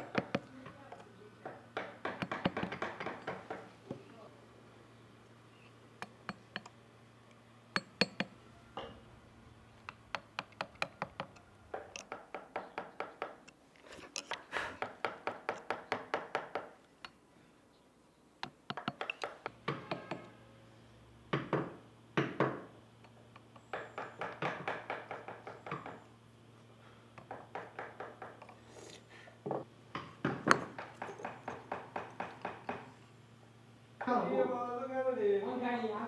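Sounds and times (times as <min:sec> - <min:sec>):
mallet tapping chisel into wood: 0:00.0 - 0:00.8, 0:01.4 - 0:03.7, 0:07.8 - 0:09.0, 0:09.9 - 0:13.4, 0:18.4 - 0:20.3, 0:23.7 - 0:26.0, 0:27.2 - 0:28.5, 0:29.5 - 0:33.0.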